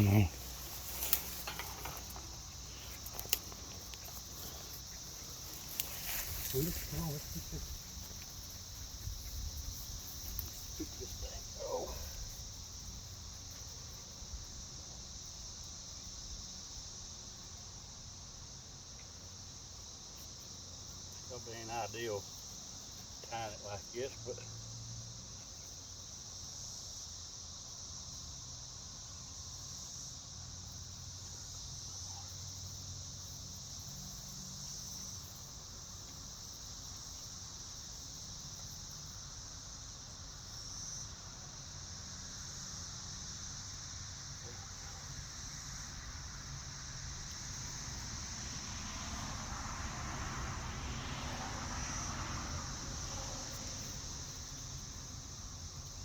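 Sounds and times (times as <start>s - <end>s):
rustling: 0.0s - 12.4s
crickets trilling: 0.0s - 56.0s.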